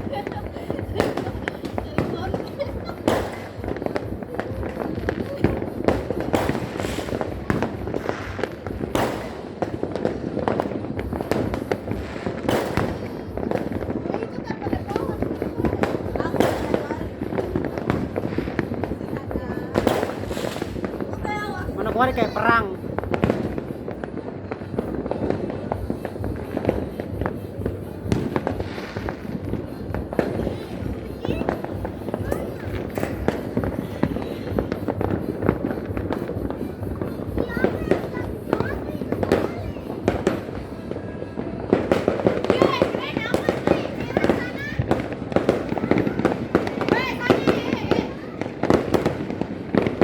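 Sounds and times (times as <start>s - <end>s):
fireworks bangs and pops: 0.0s - 50.0s
rumble of distant explosions: 0.0s - 50.0s.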